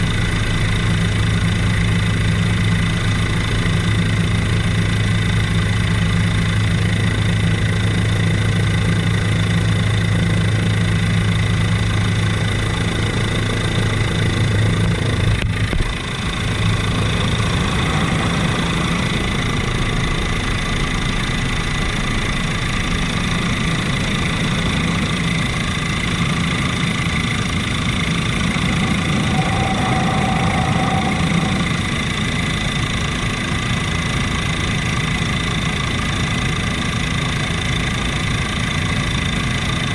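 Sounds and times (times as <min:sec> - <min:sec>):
helicopter engine and rotor: 0:00.0 - 0:39.9
deep hum: 0:11.4 - 0:35.4
high whine: 0:11.4 - 0:38.1.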